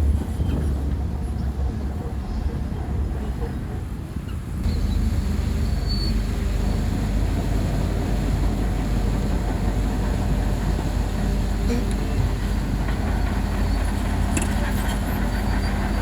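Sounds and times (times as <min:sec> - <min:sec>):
bulldozer diesel engine rumbling: 0:04.5 - 0:16.0.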